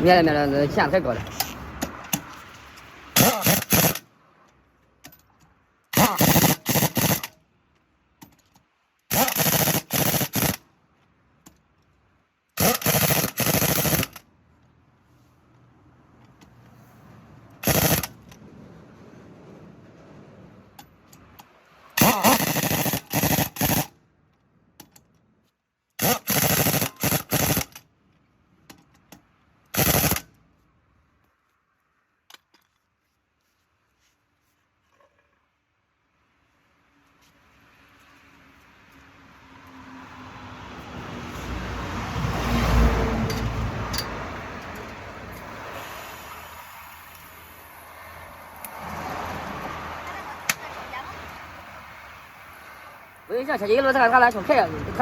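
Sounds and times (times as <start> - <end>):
impact wrench hammering: 3.2 - 4.0, 6.0 - 7.3, 9.1 - 10.6, 12.6 - 14.2, 17.6 - 18.2, 22.0 - 23.9.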